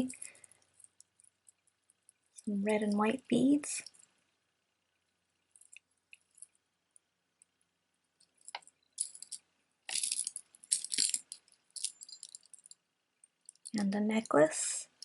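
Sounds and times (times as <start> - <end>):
jewelry beads clinking and rattling: 0.0 - 4.1, 5.5 - 6.6, 8.2 - 15.0.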